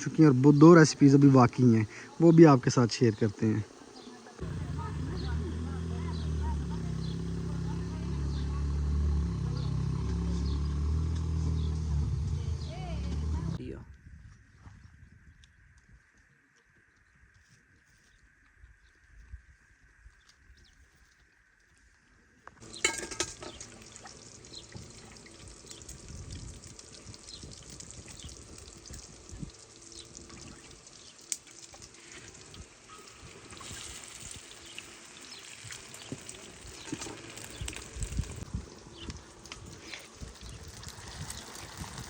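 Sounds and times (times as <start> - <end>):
water pouring and trickling: 22.6 - 42.0.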